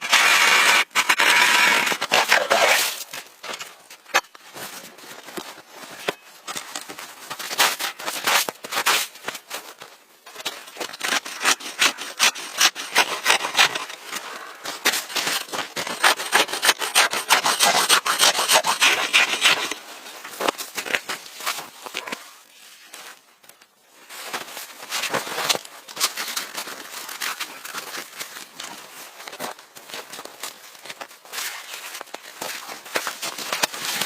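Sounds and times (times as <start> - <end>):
hand tool rasping wood: 0.0 - 2.9, 11.0 - 14.0, 14.8 - 19.8.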